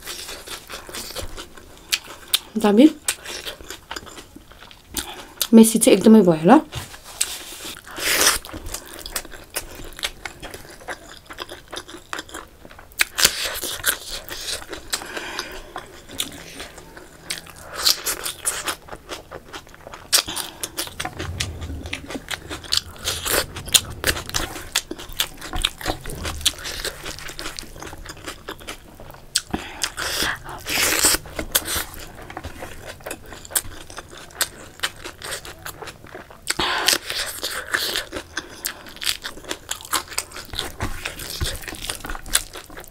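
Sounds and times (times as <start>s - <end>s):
person chewing food: 3.1s - 5.5s.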